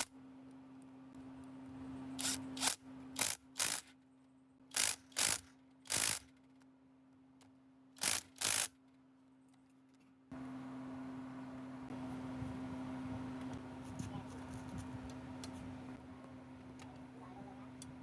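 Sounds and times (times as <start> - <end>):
ratchet wrench clicking: 2.2 - 3.9, 4.7 - 6.3, 8.0 - 8.8.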